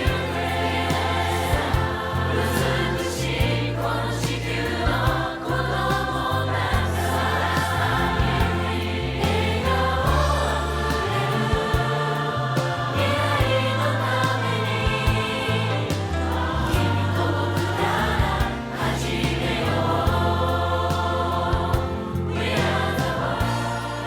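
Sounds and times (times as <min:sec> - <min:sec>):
steady bass line: 0:00.0 - 0:24.0
voices singing: 0:00.0 - 0:24.0.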